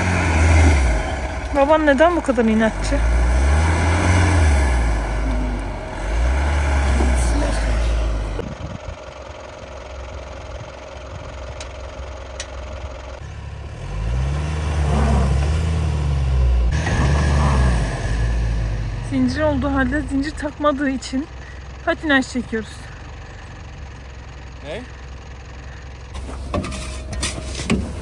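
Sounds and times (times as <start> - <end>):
car engine revving: 0.0 - 9.0, 13.2 - 25.0.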